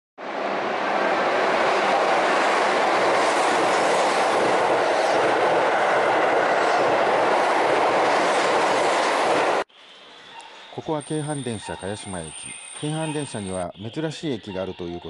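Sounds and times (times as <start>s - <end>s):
train wheels rushing on rail: 0.2s - 9.6s.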